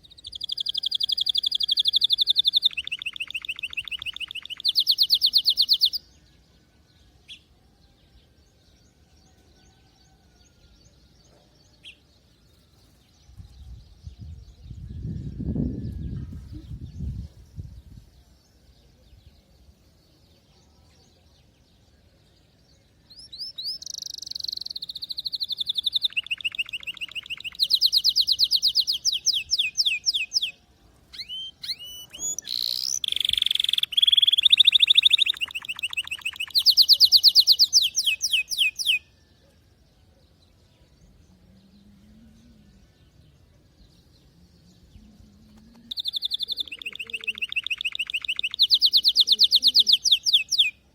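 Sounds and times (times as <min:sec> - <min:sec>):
canary singing trills: 0:00.0 - 0:06.4, 0:23.1 - 0:50.9.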